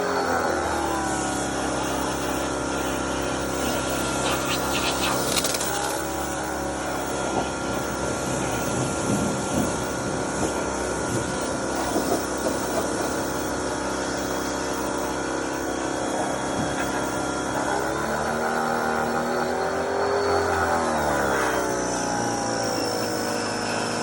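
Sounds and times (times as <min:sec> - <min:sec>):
pressure washer motor humming: 0:00.0 - 0:24.0
water spray hissing: 0:03.6 - 0:06.2.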